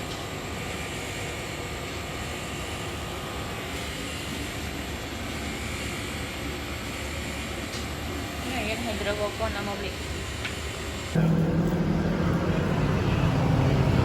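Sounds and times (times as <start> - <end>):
low rumble of moving vehicle: 11.2 - 14.0.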